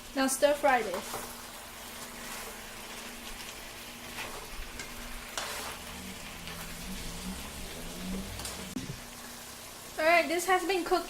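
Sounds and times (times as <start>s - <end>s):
chicken sizzling in hot oil: 0.0s - 11.0s
spatula scraping a pan: 0.8s - 8.9s.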